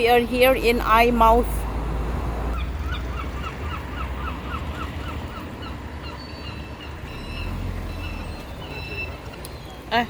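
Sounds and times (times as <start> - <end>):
higher bird calls: 2.5 - 10.0.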